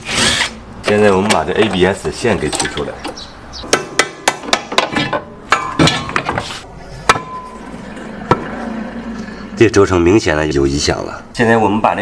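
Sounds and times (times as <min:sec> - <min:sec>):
metal tools clinking on wheel hub: 0:01.0 - 0:03.3.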